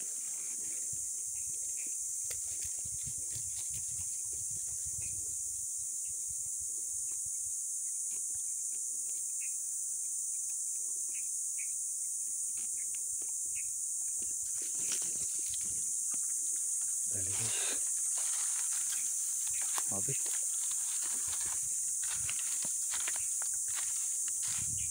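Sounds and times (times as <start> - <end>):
high-pitched insect drone: 0.0 - 24.9
short insect chirps: 0.0 - 24.9
leaves rustling: 14.4 - 24.9.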